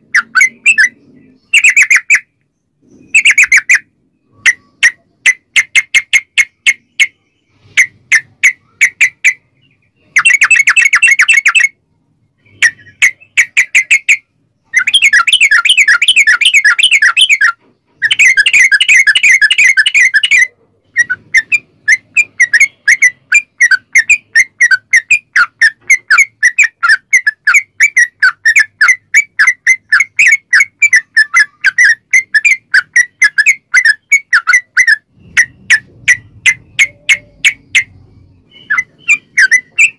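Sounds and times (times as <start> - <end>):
bulbul chattering song: 0.0 - 11.8, 12.4 - 39.9.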